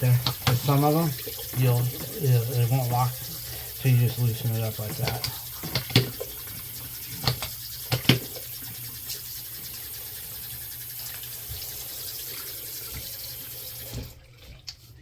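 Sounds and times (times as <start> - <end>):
faucet running into sink: 0.0 - 15.0.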